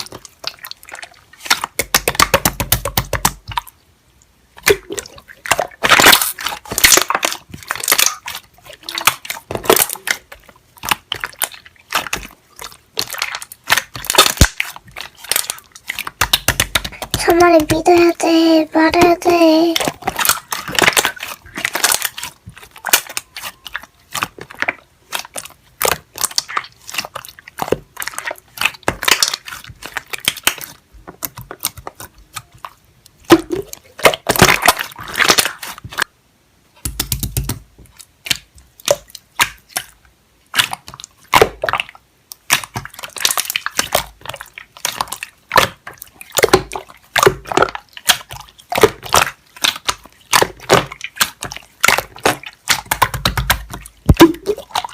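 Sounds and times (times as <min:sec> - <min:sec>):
rapid crunchy clicks and taps: 0:13.0 - 0:36.1, 0:36.8 - 0:40.0, 0:40.6 - 0:54.9.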